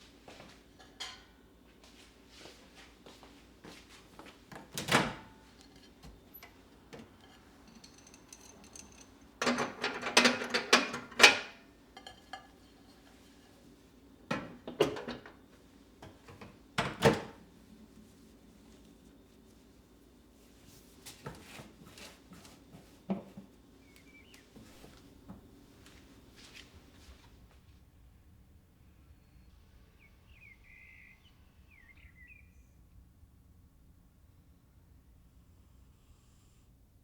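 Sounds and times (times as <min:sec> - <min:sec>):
knocking and clattering: 0:05.7 - 0:12.3, 0:14.3 - 0:15.4.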